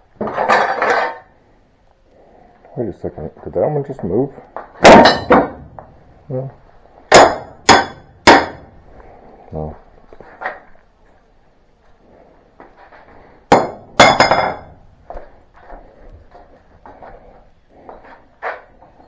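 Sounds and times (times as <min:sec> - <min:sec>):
loud metal clanks: 0:04.8 - 0:05.8, 0:07.1 - 0:08.7, 0:13.5 - 0:14.8.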